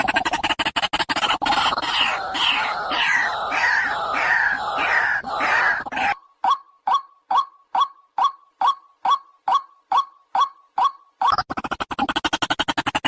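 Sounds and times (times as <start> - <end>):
waterhen calling: 1.4 - 11.4.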